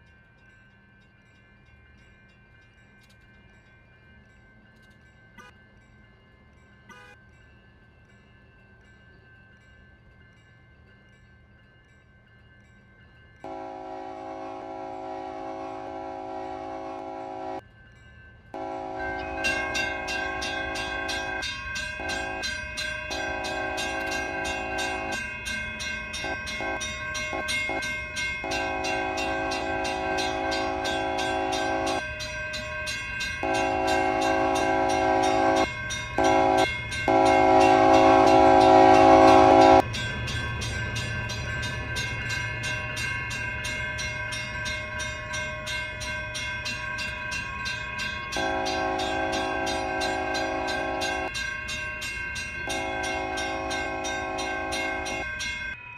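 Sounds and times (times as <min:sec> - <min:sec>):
train rumble: 0:00.0 - 0:55.8
railroad crossing bell dinging: 0:00.0 - 0:55.9
train horn blasts: 0:06.9 - 0:07.2, 0:13.4 - 0:17.6, 0:18.6 - 0:22.5, 0:23.1 - 0:25.2, 0:26.2 - 0:32.1, 0:33.4 - 0:39.8, 0:48.3 - 0:51.3, 0:52.6 - 0:55.3.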